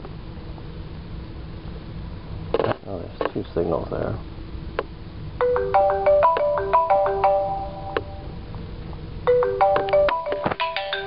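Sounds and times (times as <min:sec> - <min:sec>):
marimba phone ringtone: 0:05.4 - 0:08.4, 0:09.3 - 0:11.0.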